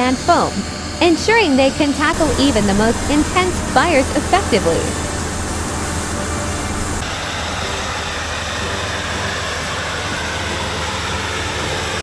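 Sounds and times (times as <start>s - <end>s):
vehicle engine hum: 2.1s - 7.1s
broad rushing sound: 2.1s - 7.7s.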